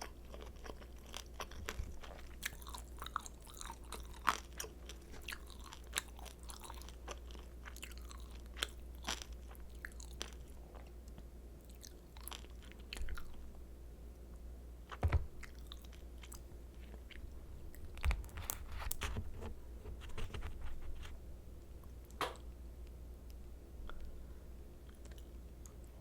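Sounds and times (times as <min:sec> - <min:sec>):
person biting and chewing crunchy food: 0:00.0 - 0:10.8, 0:14.9 - 0:19.4.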